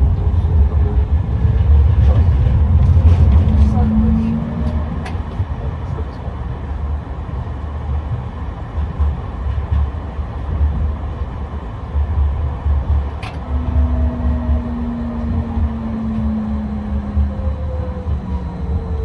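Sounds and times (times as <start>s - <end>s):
tram rumbling on rails: 0.0s - 19.0s
steady low hum: 12.6s - 19.0s.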